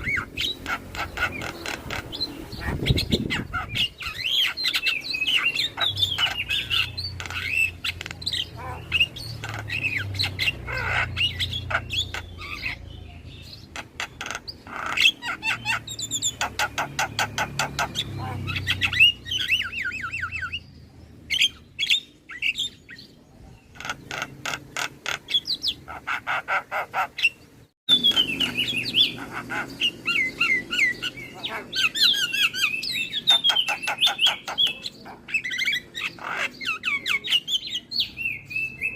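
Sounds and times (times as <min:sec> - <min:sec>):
harsh bird chatter: 0:00.0 - 0:38.9
bird singing whistled notes: 0:36.8 - 0:38.9.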